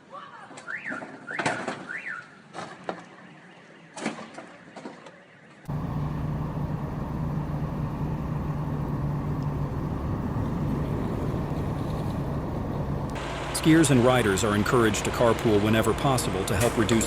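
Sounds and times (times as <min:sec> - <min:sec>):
road rumble: 0:05.6 - 0:17.0
vehicle engine hum: 0:05.6 - 0:17.0.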